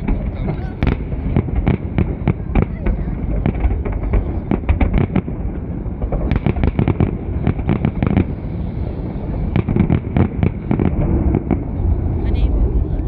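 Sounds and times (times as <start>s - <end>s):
fireworks crackling: 0.0s - 13.0s
steady low rumble: 0.0s - 13.0s.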